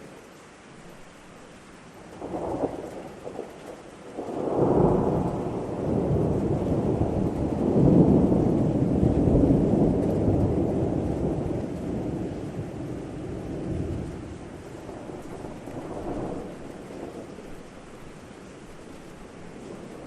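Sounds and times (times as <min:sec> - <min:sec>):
steady rain: 0:00.0 - 0:20.0
thunder rolling: 0:02.2 - 0:17.7, 0:19.5 - 0:20.0.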